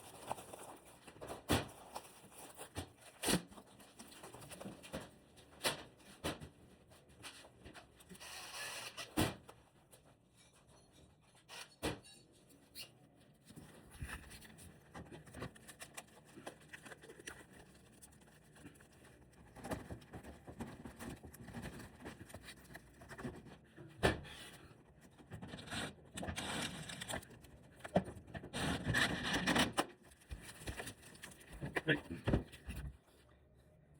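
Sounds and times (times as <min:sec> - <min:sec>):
rustling and scraping: 0:12.4 - 0:33.3.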